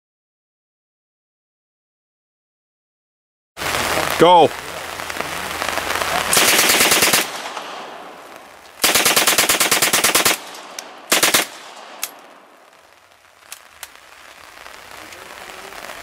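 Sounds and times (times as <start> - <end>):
machine gun firing bursts: 6.3 - 8.0, 8.8 - 12.1
single gunshots: 6.3 - 12.6.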